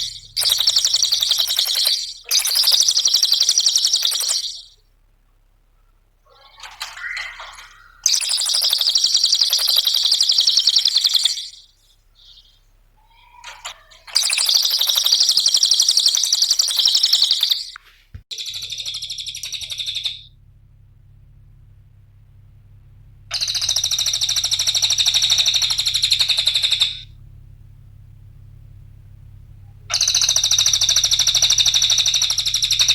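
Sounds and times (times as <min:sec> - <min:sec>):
songbird chattering trills: 0:00.0 - 0:04.8, 0:06.3 - 0:20.3, 0:23.3 - 0:27.1, 0:29.9 - 0:32.9.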